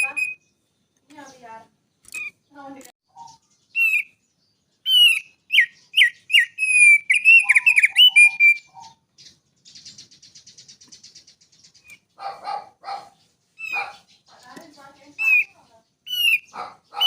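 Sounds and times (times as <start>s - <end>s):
songbird whistled chirps: 0.0s - 12.2s, 13.0s - 17.0s
bird buzzy trill: 4.9s - 9.0s.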